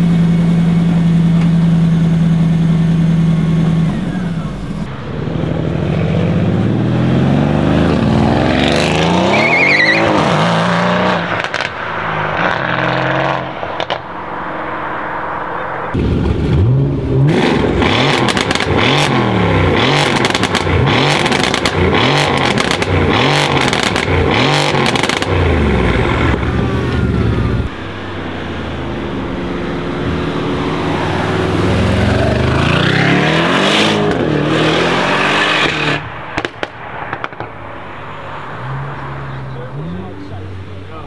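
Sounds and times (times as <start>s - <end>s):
car engine accelerating: 0.0s - 36.7s
car engine revving: 0.0s - 41.0s
exhaust pops and crackles: 11.3s - 11.8s, 18.1s - 18.9s, 20.0s - 25.4s, 35.6s - 37.6s.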